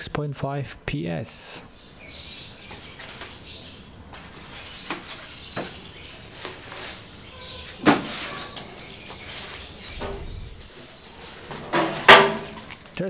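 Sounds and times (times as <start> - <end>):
knocks and clunks: 11.4 - 12.8.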